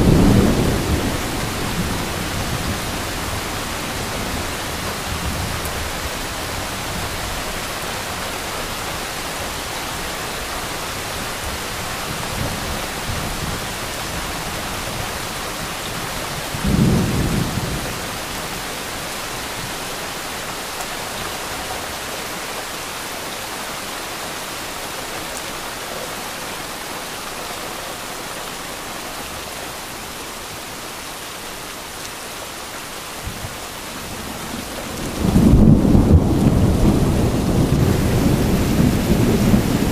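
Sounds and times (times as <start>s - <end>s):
faint low thunder rumbles: 0.0s - 7.5s, 12.2s - 18.4s, 33.2s - 39.9s
heavy rain pouring: 0.0s - 39.9s
thunder clap: 34.2s - 39.9s.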